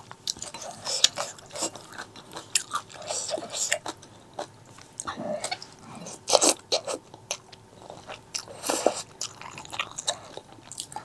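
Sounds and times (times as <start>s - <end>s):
crunchy bites and chewing: 0.1s - 11.0s.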